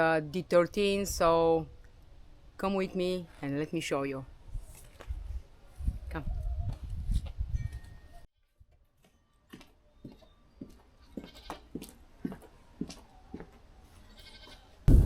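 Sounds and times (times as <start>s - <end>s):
goats bleating: 14.1s - 14.7s.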